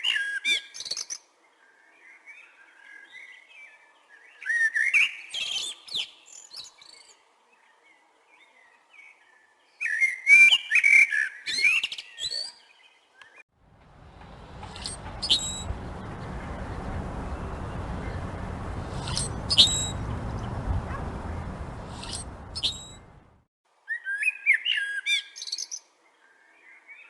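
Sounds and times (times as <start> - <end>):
blackbird singing: 14.0 - 23.2.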